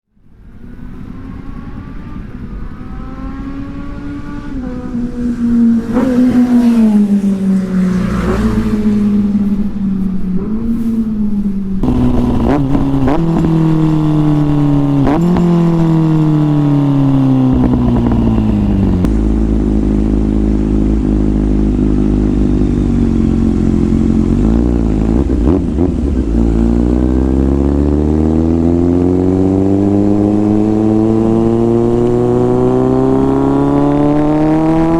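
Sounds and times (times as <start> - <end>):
motorcycle engine revving: 0.3 - 34.9.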